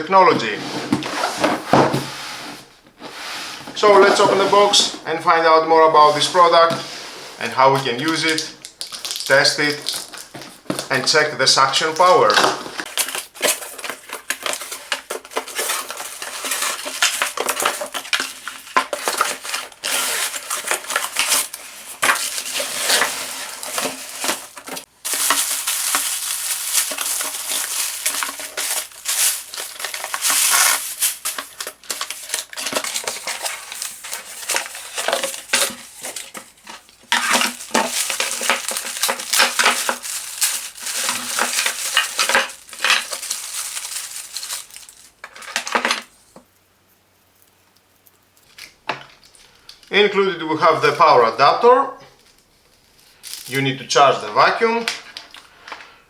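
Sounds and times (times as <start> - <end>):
packaging rustling and crinkling: 6.0 - 46.6, 52.2 - 53.7
plastic parts clicking and clattering: 8.0 - 11.2, 12.2 - 46.5.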